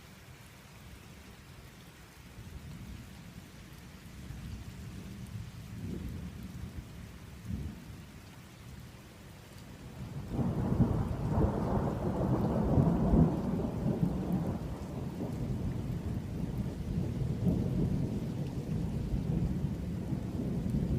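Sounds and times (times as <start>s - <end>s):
rainstorm: 0.0s - 20.9s
thunder rumbling: 10.0s - 20.9s.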